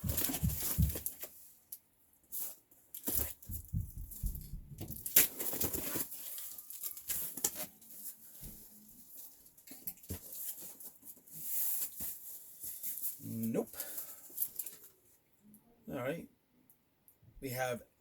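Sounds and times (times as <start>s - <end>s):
cardboard tearing and crinkling: 0.0s - 1.3s, 4.8s - 13.2s.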